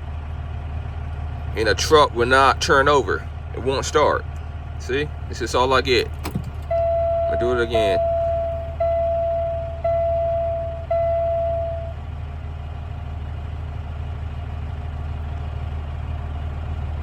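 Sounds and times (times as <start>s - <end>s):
steady low hum: 4.8s - 12.0s
dashboard warning buzzer: 6.7s - 12.0s.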